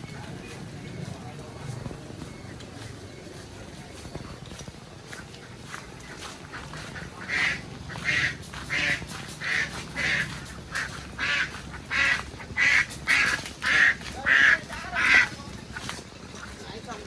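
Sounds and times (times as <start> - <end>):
duck quacking: 5.1 - 16.5.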